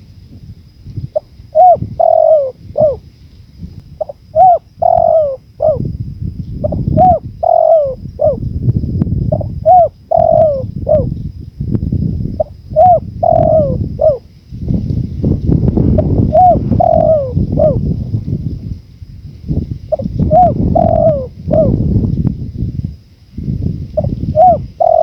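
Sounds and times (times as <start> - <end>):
low wind noise: 0.0 - 25.0
dove cooing: 1.1 - 3.1, 4.0 - 5.9, 6.6 - 8.5, 9.3 - 11.2, 12.4 - 14.3, 15.8 - 18.2, 19.9 - 22.1, 24.0 - 25.0.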